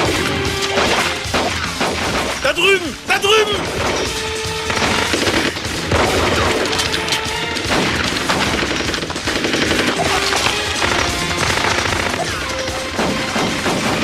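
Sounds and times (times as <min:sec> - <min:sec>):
film score music: 0:00.0 - 0:14.0
rapid automatic gunfire: 0:04.6 - 0:14.0.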